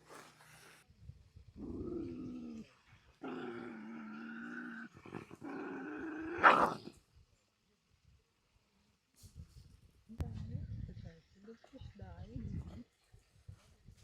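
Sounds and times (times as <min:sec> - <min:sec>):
animal loud cry: 0:06.3 - 0:06.8.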